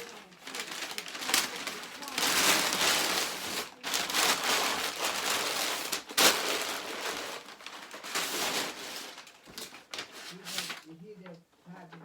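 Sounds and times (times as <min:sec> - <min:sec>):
packaging ripping: 0:00.0 - 0:10.9
wrapping rustling and crinkling: 0:00.0 - 0:12.0.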